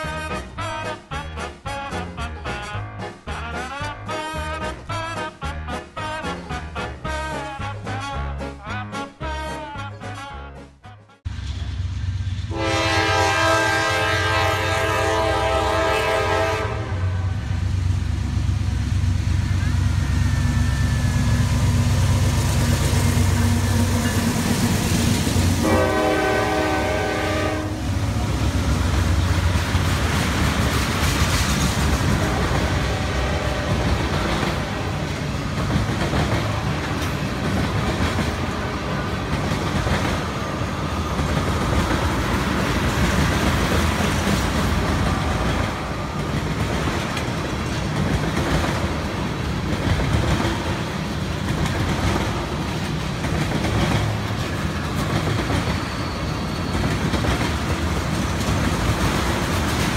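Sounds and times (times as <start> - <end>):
locomotive horn: 0.0 - 11.3, 12.5 - 17.6, 25.3 - 29.4, 32.1 - 35.2
train wheels rumbling on rails: 11.3 - 59.9
wheels clicking over rail joints: 33.6 - 59.9.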